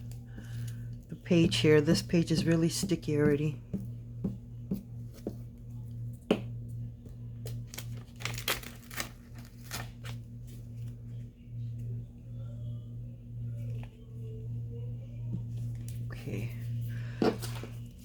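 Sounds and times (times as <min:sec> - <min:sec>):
low hum: 0:00.0 - 0:18.0
paper rustling and tearing: 0:07.7 - 0:10.2.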